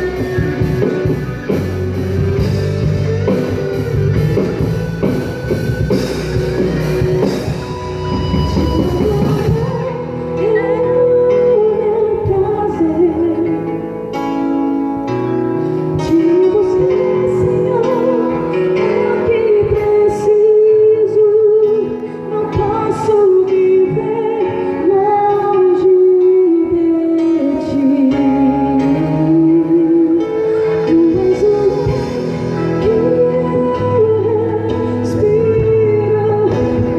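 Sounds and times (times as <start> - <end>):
drums and cymbals: 0.0 - 10.0
worship band playing: 0.0 - 36.9.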